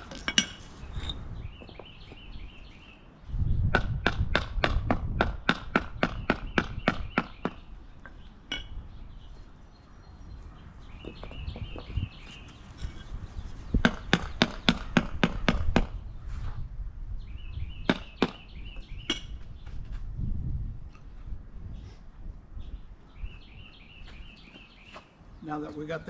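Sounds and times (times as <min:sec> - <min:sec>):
birds chirping: 0:00.0 - 0:04.4, 0:05.3 - 0:16.3, 0:17.1 - 0:20.1, 0:20.9 - 0:26.0
sharp knocks on pavers: 0:03.6 - 0:08.7, 0:13.8 - 0:16.0, 0:17.8 - 0:20.0.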